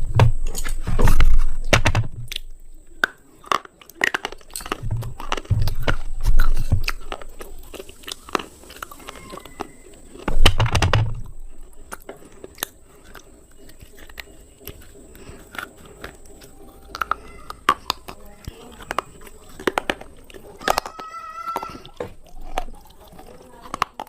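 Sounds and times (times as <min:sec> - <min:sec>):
chewing with brittle clicks: 0:00.0 - 0:24.0
crunching bites: 0:00.0 - 0:24.0.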